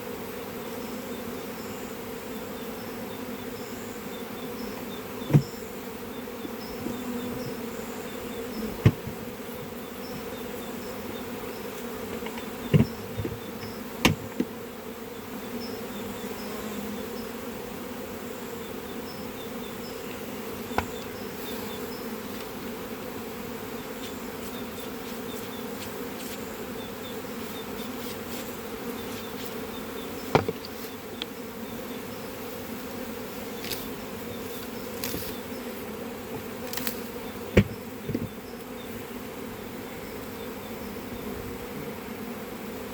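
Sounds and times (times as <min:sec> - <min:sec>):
bees buzzing: 0:00.0 - 0:42.9
sharp knocks: 0:08.8 - 0:09.2, 0:12.1 - 0:14.5, 0:30.3 - 0:30.7, 0:37.5 - 0:38.4.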